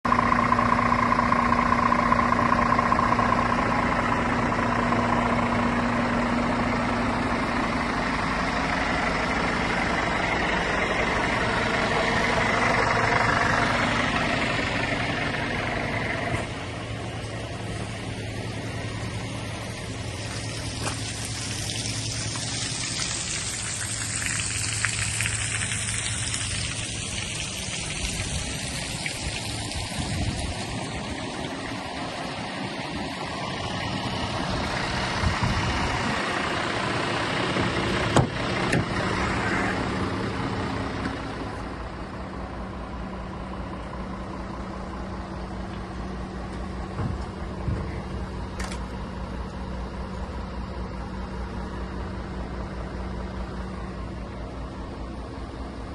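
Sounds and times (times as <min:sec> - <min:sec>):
truck diesel engine idling: 0:00.0 - 0:55.9.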